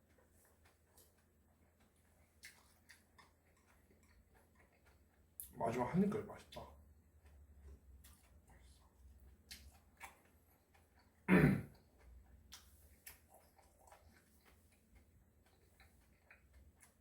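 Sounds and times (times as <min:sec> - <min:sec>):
close-miked chewing: 0:00.0 - 0:17.0.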